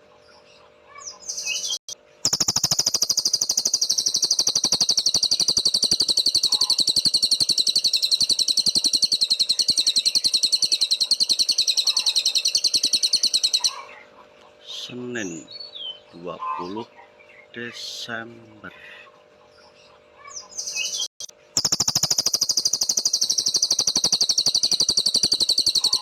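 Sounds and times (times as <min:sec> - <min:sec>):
songbird trilling: 0:01.0 - 0:14.0, 0:20.2 - 0:26.0.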